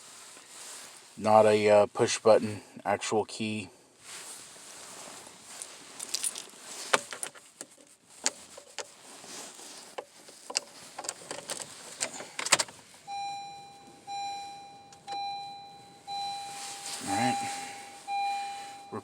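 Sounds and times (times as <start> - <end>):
car key jangling and clicking: 5.6 - 7.4, 10.4 - 12.8
dashboard warning chime dinging: 13.0 - 19.0.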